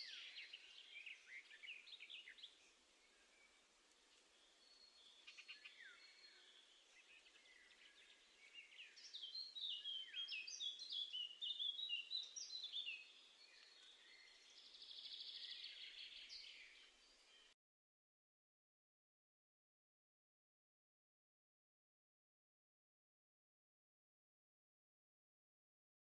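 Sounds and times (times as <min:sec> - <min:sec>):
songbirds singing and calling: 0:00.0 - 0:17.6.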